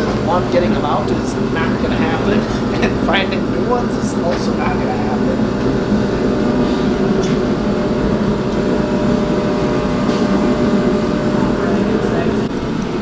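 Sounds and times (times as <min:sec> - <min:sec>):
motor droning: 0:00.0 - 0:13.0.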